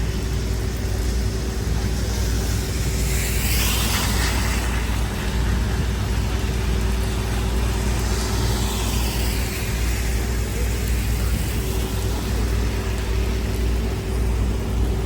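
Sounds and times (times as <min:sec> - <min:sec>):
low traffic rumble: 0:00.0 - 0:15.0
traffic hiss: 0:00.0 - 0:15.0
wind: 0:00.0 - 0:15.0
car passing on wet road: 0:01.5 - 0:13.6.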